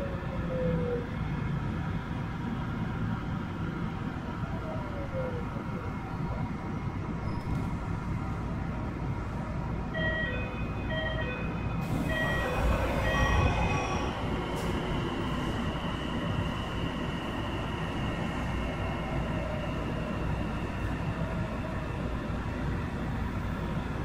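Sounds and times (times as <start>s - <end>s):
train wheels rumbling on rail: 6.6s - 9.8s, 10.9s - 24.0s.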